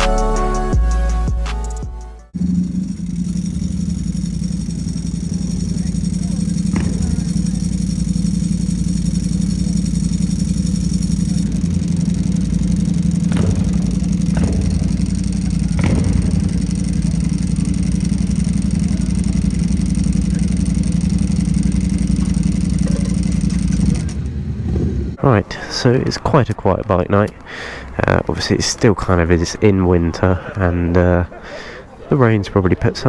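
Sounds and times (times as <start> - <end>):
motorcycle engine idling: 2.2 - 25.3.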